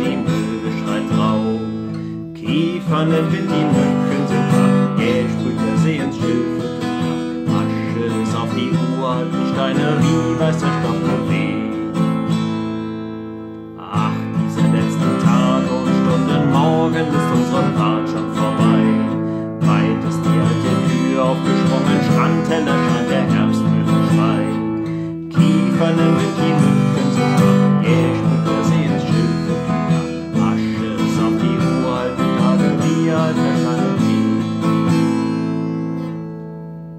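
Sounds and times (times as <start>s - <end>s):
acoustic guitar strumming: 0.0s - 36.9s.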